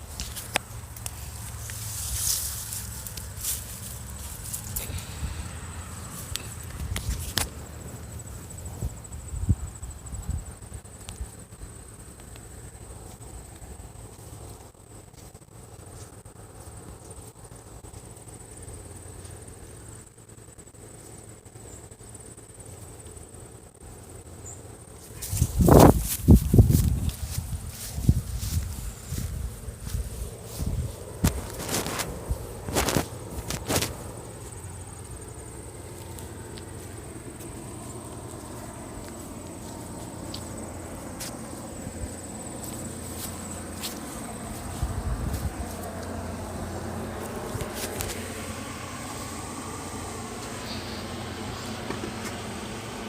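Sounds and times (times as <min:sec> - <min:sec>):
low wind rumble: 0:00.0 - 0:14.1, 0:25.2 - 0:53.0
cricket trilling: 0:00.0 - 0:53.0.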